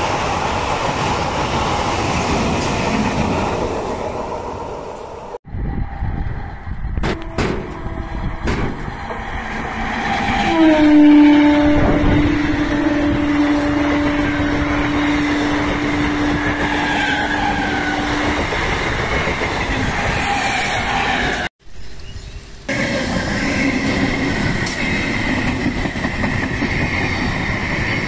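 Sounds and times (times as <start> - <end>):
electric train passing at speed: 0.0 - 21.5, 22.4 - 28.0
train horn long blast: 7.0 - 18.4.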